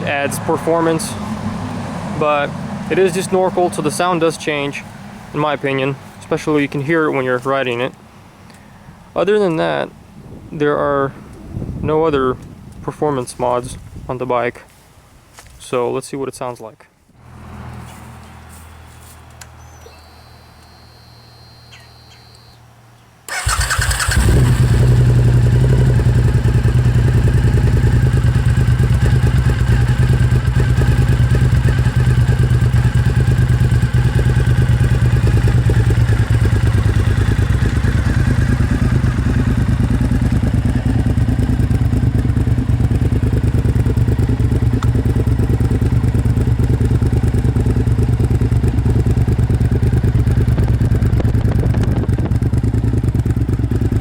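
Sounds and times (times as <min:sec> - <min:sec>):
motorcycle engine starting and idling: 0:00.0 - 0:04.8, 0:23.3 - 0:54.0.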